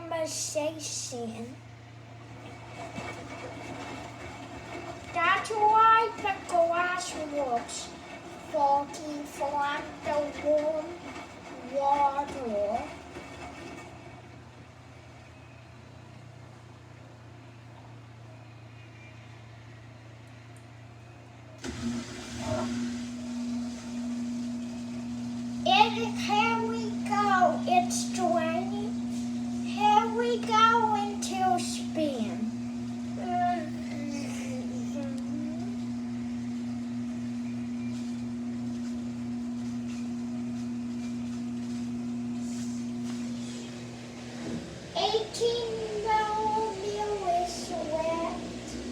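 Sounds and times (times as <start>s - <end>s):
drain pump humming: 0.0s - 48.9s
washing machine humming: 0.0s - 48.9s
water rushing out: 21.6s - 26.2s.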